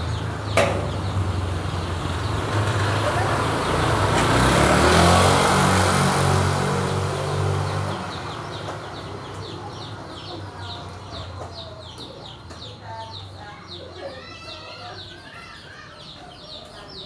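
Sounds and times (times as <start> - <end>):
vehicle passing by: 0.0 - 11.3.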